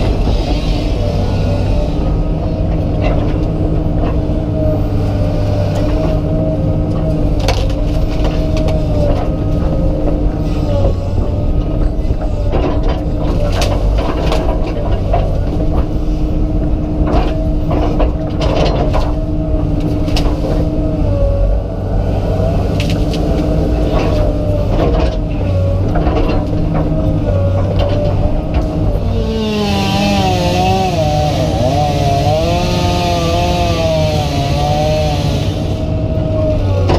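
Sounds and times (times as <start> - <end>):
excavator diesel engine running: 0.0 - 36.9
wood cracking and snapping: 7.4 - 9.7.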